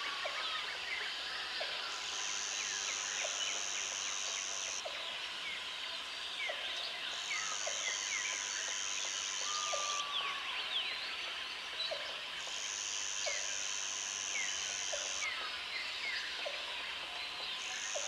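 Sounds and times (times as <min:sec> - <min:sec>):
birds and insects chirping: 0:00.0 - 0:18.0
high insect buzz: 0:02.1 - 0:04.8, 0:12.4 - 0:15.3.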